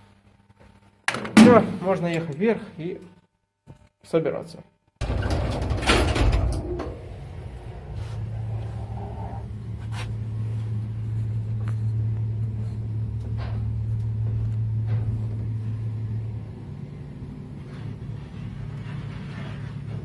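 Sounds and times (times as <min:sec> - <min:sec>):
elevator humming: 0:05.0 - 0:20.0.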